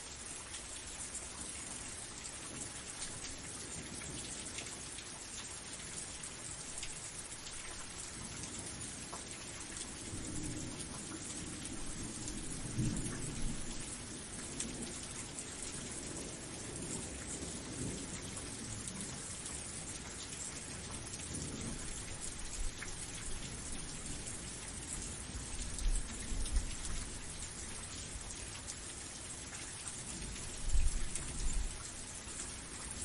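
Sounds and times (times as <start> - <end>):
steady rain falling: 0.0 - 33.0
low roll of thunder: 10.1 - 15.1.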